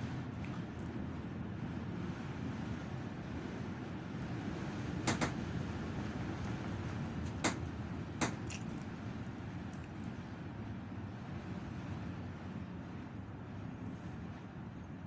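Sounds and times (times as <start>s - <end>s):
vehicle rumble: 0.0s - 15.0s
sharp knocks: 5.0s - 5.4s, 8.2s - 8.5s.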